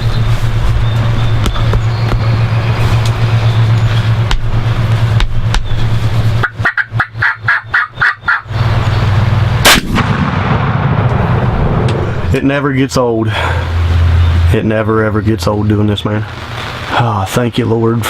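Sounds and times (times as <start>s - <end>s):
low vehicle hum: 0.0s - 18.0s
wild turkey gobbling: 6.4s - 8.6s
sharp loud bang: 9.6s - 12.1s.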